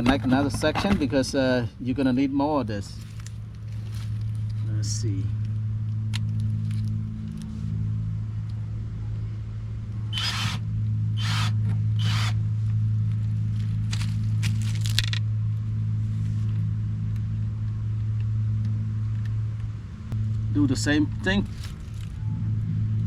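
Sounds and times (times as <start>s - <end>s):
steady low hum: 0.0s - 23.0s
scraping rustling handling noises: 2.9s - 4.8s, 13.2s - 15.2s, 21.2s - 22.2s.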